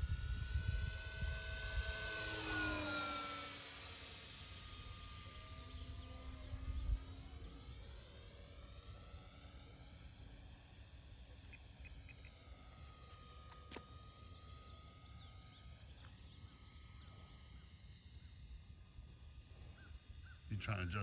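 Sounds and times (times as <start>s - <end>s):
distant model plane hum: 0.0s - 21.0s.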